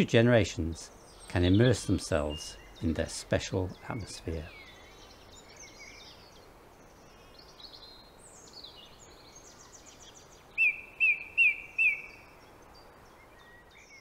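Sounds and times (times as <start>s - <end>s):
birds singing: 0.0s - 14.0s
loud repeated bird notes: 10.6s - 12.3s.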